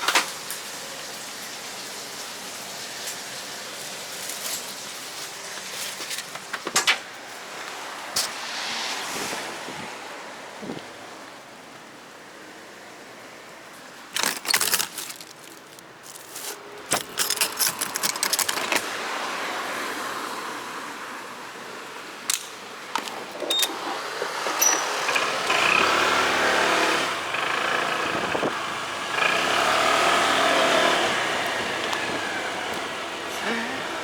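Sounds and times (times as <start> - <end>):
clicking and rattling: 14.1 - 18.9.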